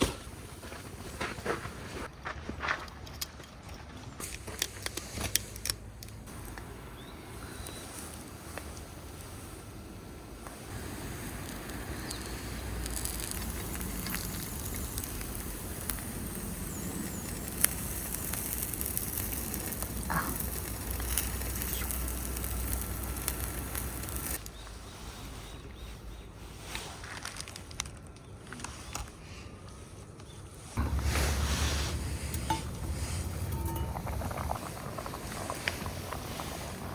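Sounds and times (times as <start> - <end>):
campfire crackling and popping: 10.4 - 24.6, 30.8 - 36.9.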